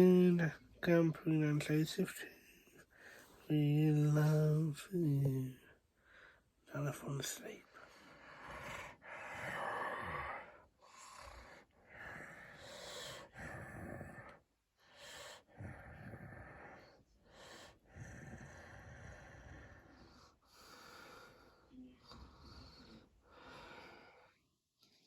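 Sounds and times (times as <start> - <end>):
person pretend snoring: 8.5 - 14.4.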